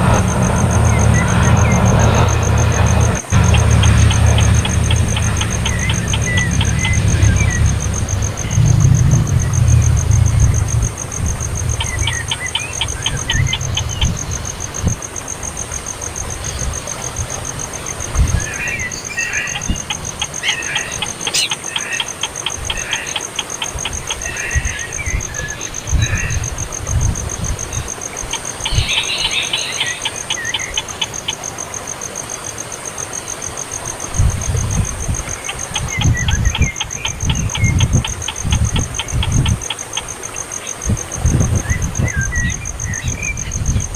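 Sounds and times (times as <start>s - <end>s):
steady high buzz: 0.0s - 21.5s.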